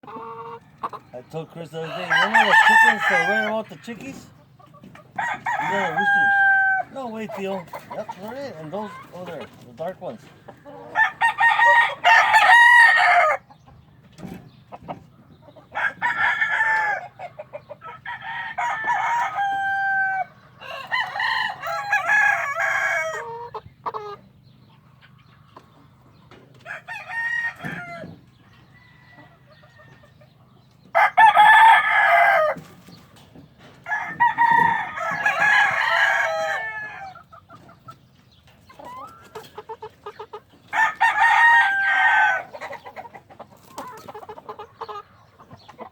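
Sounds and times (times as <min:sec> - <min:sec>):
young cockerels crowing: 0:01.6 - 0:04.2, 0:04.8 - 0:09.2, 0:10.5 - 0:13.6, 0:15.6 - 0:24.2, 0:26.6 - 0:30.2, 0:30.8 - 0:32.9, 0:33.8 - 0:37.4, 0:40.3 - 0:43.1.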